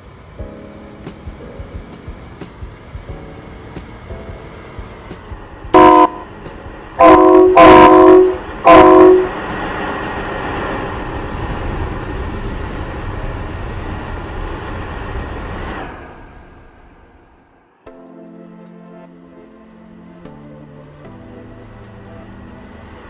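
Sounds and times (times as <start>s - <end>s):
train running rumble: 0.0s - 17.8s, 19.2s - 23.0s
train horn blasts: 5.7s - 9.7s.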